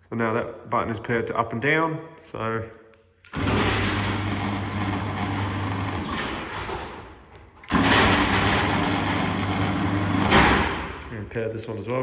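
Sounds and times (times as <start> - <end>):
garage door opener motor hum: 3.3 - 11.2.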